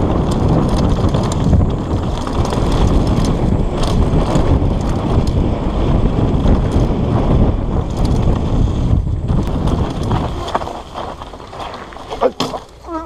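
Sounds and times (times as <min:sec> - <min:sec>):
bike clicks and rattles: 0:00.0 - 0:13.0
steady rumble: 0:00.0 - 0:13.0
wind buffeting microphone: 0:00.0 - 0:13.0.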